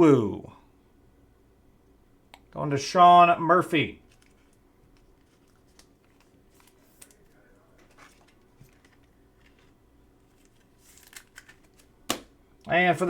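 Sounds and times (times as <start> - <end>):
trading cards being handled: 4.0 - 13.0.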